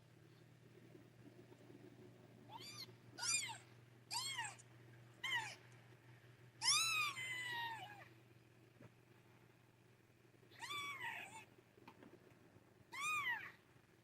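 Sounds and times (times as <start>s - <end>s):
kitten mewing: 2.5s - 4.6s.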